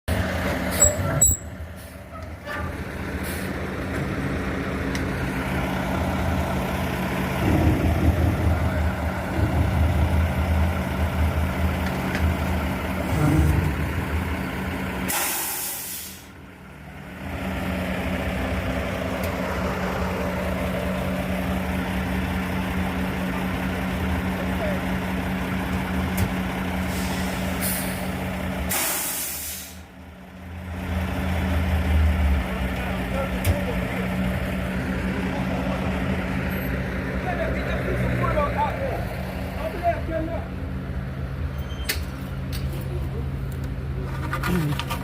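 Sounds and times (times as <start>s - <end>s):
dump truck engine running: 0.1s - 45.0s
air brakes hissing: 3.2s - 3.6s, 15.1s - 16.4s, 26.8s - 28.1s, 28.7s - 29.9s.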